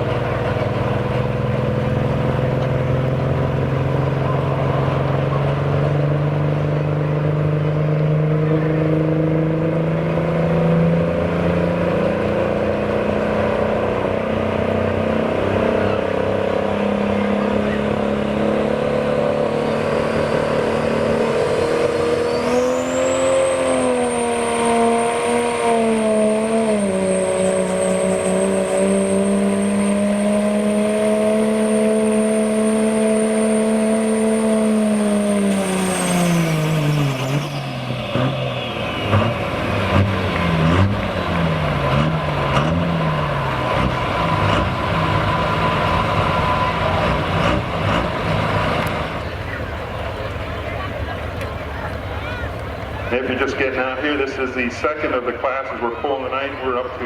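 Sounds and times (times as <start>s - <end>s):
diesel truck engine revving: 0.0s - 57.0s
high turbo whistle: 19.7s - 40.0s, 43.2s - 47.5s.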